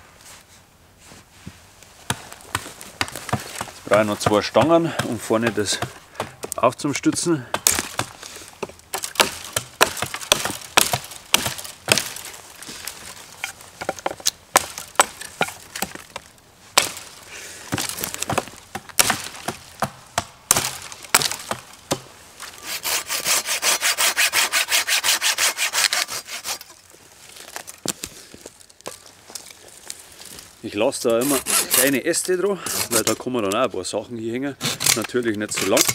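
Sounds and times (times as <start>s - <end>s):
dry wood cracking and snapping: 2.1s - 23.4s, 25.8s - 33.6s, 34.6s - 35.9s
hand saw cutting branch: 22.6s - 26.8s, 31.1s - 33.2s, 34.6s - 35.9s.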